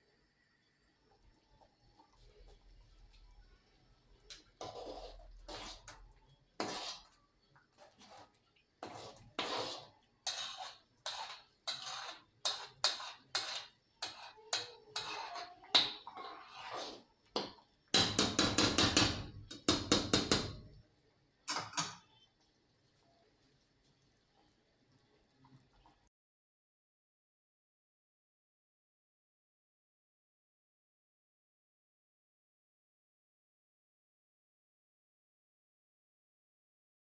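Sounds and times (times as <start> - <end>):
kitchen dishes clattering: 21.5 - 22.0.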